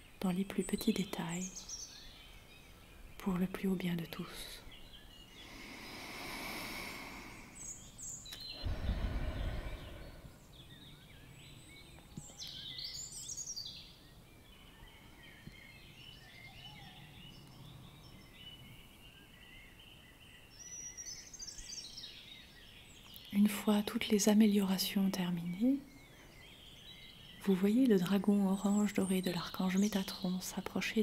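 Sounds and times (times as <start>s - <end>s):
birds chirping: 0.0s - 31.0s
low rumble: 8.4s - 10.6s.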